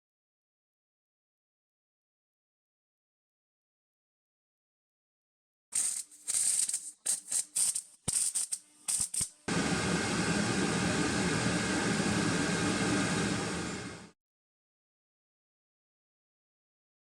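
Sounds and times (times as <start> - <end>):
short hissing bursts: 5.7 - 9.5
air heater rushing noise: 9.5 - 14.2.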